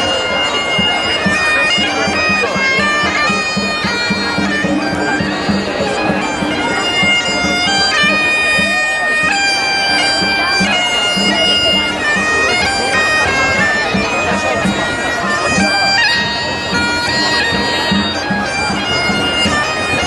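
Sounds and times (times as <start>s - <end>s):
bagpipe-like reed melody: 0.0s - 20.0s
steady drum beat: 0.1s - 9.4s.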